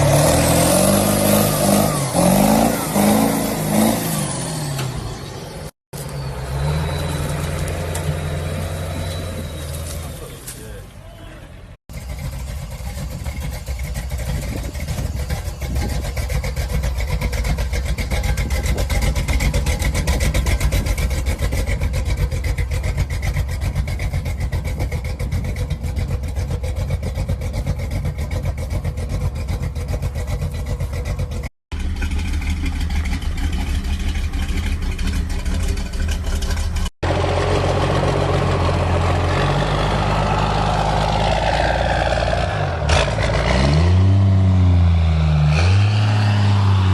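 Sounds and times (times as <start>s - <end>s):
old truck engine running: 11.9s - 42.4s.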